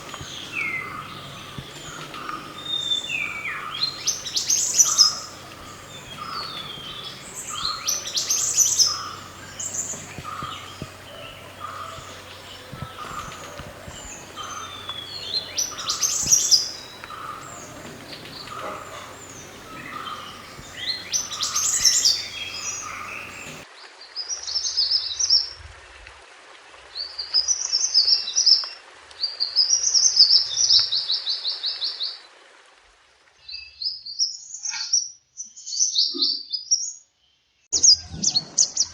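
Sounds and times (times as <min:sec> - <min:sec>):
songbird chirping and trilling: 0:00.0 - 0:23.7.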